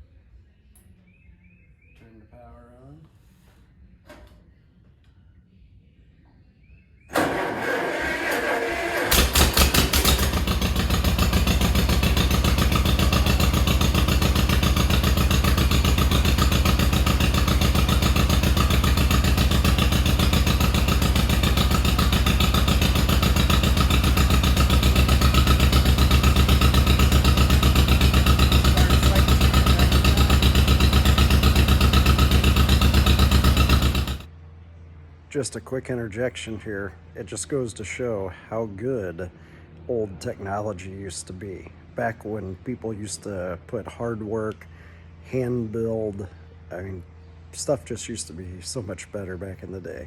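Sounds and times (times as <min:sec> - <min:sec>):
tractor engine running: 0:07.1 - 0:34.3.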